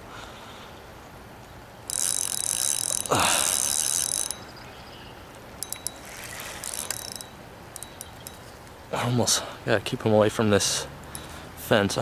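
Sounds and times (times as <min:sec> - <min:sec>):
fishing reel drag buzzing: 0:01.8 - 0:04.7, 0:05.3 - 0:08.8.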